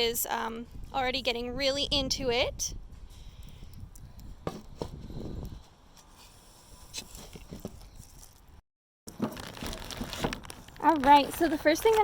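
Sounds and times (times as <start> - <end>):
small things clicking and scraping: 5.4 - 12.0.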